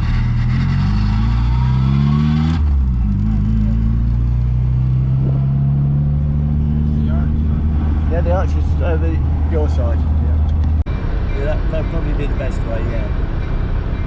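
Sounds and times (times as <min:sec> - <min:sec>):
sports car engine accelerating: 0:00.0 - 0:10.8.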